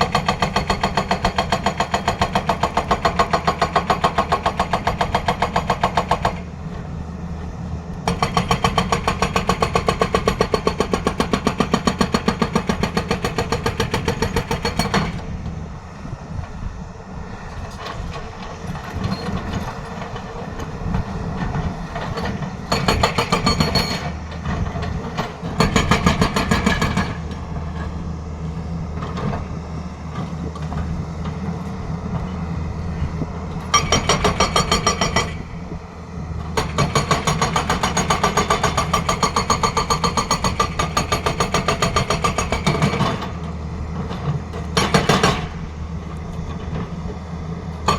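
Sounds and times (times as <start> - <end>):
excavator diesel engine running: 0.0 - 47.9
hydraulic breaker hammering: 22.2 - 24.2, 25.1 - 27.4.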